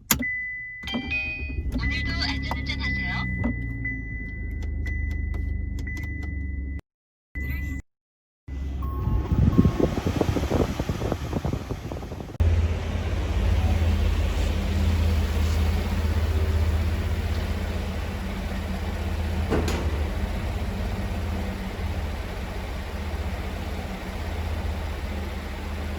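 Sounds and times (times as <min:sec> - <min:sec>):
car engine and road noise: 0:00.0 - 0:06.8, 0:08.5 - 0:25.9.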